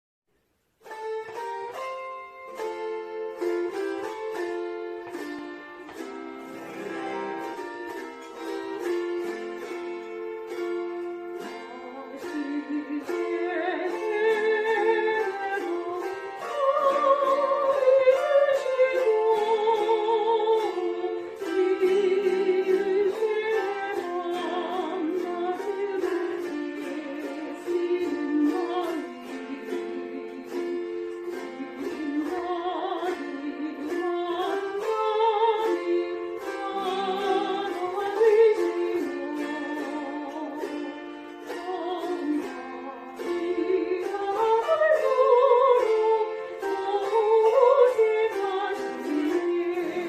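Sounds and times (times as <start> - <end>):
chromaharp chords strumming: 0.8 - 50.0
woman singing with vibrato: 11.4 - 50.0.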